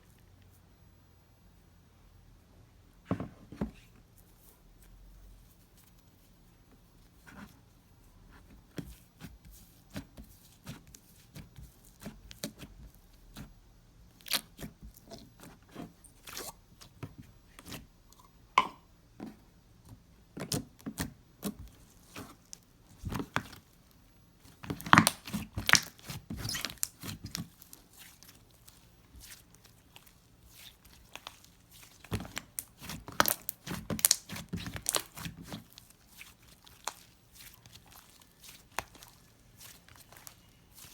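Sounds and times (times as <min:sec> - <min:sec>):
slime squelching and crackling: 0:14.1 - 0:17.8, 0:20.4 - 0:40.9.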